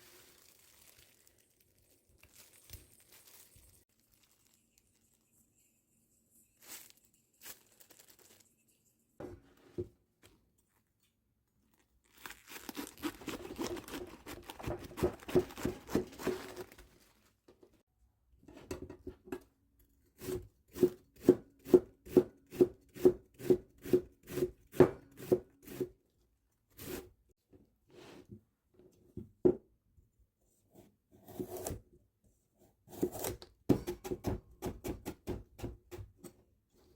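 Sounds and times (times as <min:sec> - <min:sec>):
knife chopping on cutting board: 0:14.6 - 0:16.4.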